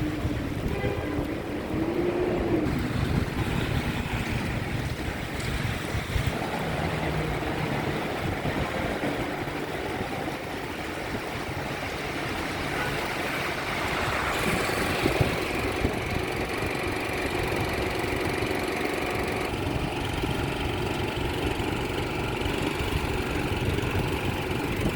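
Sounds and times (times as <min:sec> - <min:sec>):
vehicle engines running: 0:00.0 - 0:24.9.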